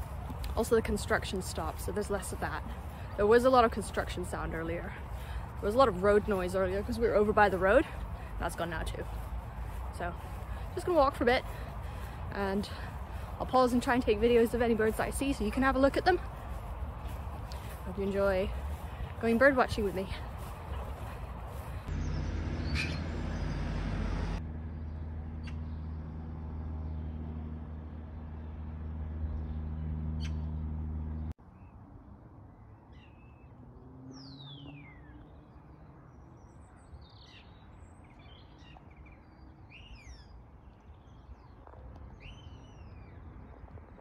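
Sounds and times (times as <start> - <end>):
small birds chirping: 0.0 - 23.7, 34.1 - 43.4
low drone: 21.8 - 31.2.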